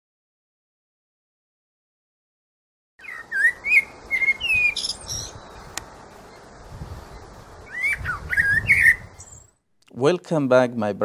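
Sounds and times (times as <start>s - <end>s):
birds whistling and chirping: 3.0s - 9.6s
steady hiss: 3.0s - 10.4s.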